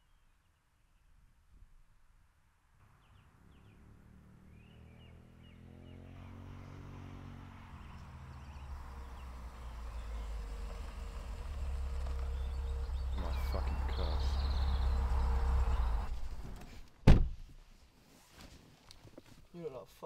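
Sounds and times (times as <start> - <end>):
low vehicle rumble: 2.8 - 17.0
birds chirping: 2.9 - 16.5.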